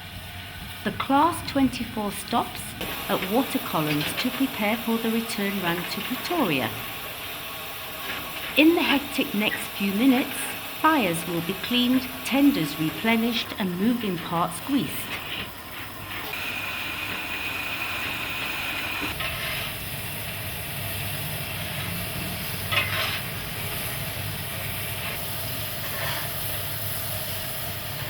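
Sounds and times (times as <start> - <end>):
steam hissing: 0.0 - 28.0
high steady tone: 8.6 - 15.2.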